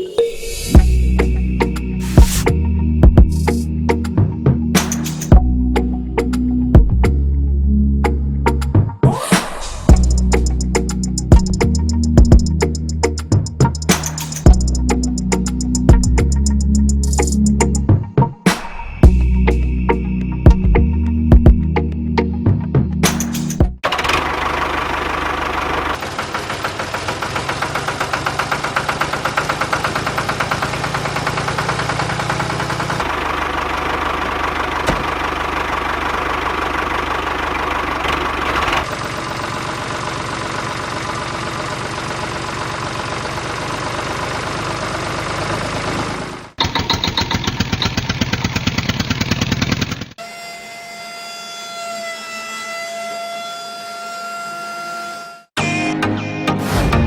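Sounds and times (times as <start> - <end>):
small motor chugging: 23.8 - 55.3.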